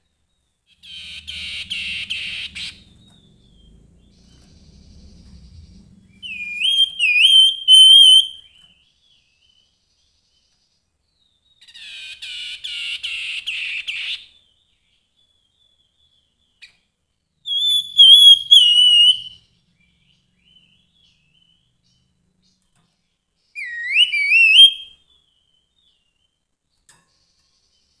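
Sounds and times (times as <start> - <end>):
bird harsh chatter: 0.8 - 3.7
bird whistling phrases: 0.8 - 8.5, 17.5 - 19.4, 23.6 - 25.0.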